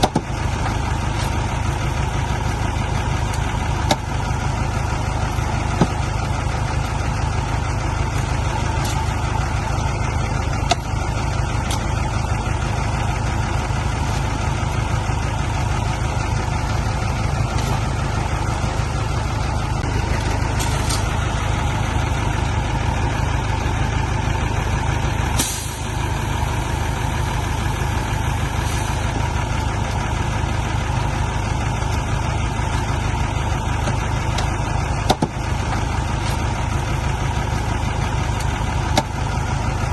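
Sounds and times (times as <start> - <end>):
heavy diesel engine running: 0.0 - 39.9
air hiss: 25.4 - 26.0.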